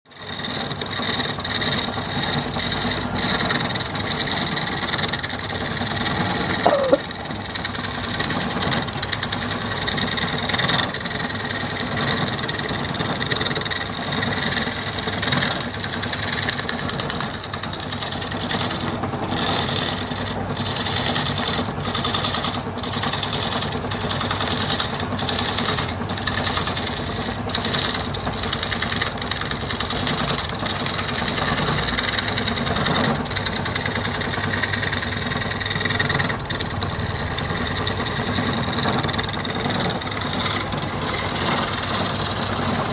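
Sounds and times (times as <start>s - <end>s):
turning tool scraping wood: 0.1s - 42.9s
wood lathe motor running: 0.1s - 42.9s
short squeak: 6.0s - 7.6s.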